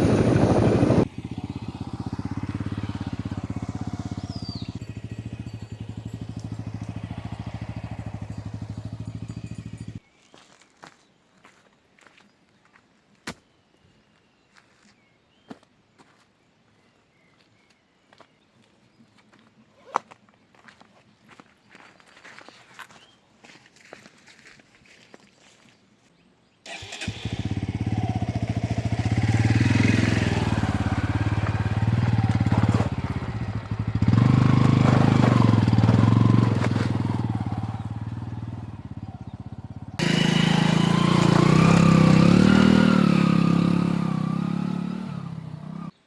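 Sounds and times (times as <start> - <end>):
motorcycle engine revving: 0.0 - 10.0, 26.7 - 46.0.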